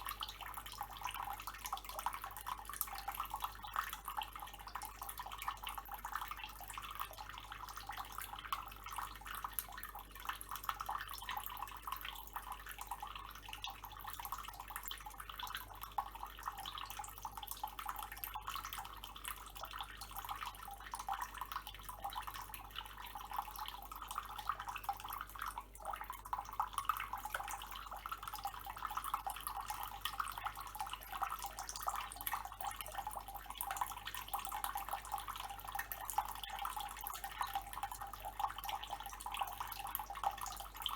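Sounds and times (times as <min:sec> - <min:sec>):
tap water running and splashing: 0:00.0 - 0:40.9.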